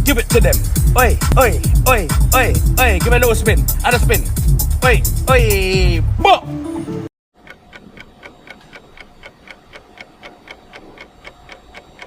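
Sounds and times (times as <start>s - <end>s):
steady ticking: 0.0s - 5.7s, 7.4s - 12.0s.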